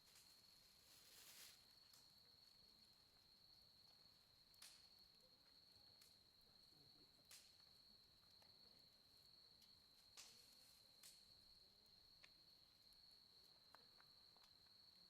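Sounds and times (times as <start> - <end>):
campfire crackle: 0.0 - 15.0
firewood popping: 9.6 - 14.9.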